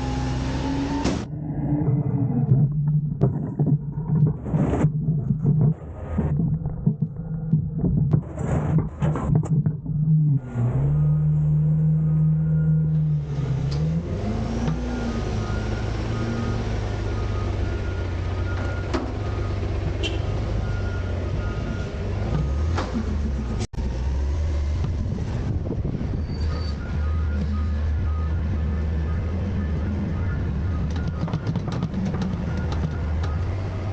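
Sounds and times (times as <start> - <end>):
garbage truck engine drone: 0.0 - 33.9.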